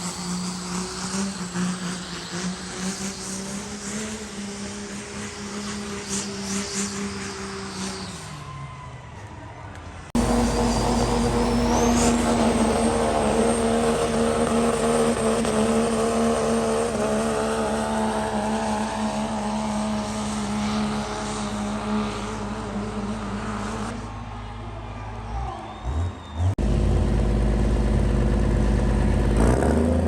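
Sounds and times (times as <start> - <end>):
engine running at high revs: 0.0 - 30.0
high whine: 10.2 - 22.6.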